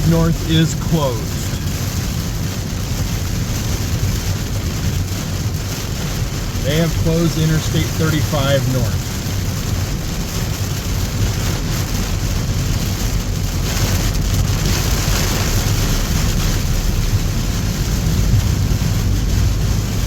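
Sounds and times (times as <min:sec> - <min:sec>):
low rumble: 0:00.0 - 0:20.0
rain hissing and spray: 0:00.0 - 0:20.0
tyre and road noise: 0:00.0 - 0:20.0.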